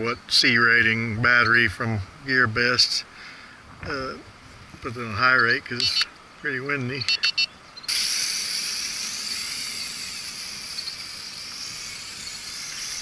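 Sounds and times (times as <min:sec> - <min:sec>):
short electronic beeps: 0:07.1 - 0:07.9
quadcopter motors whining: 0:07.1 - 0:13.0.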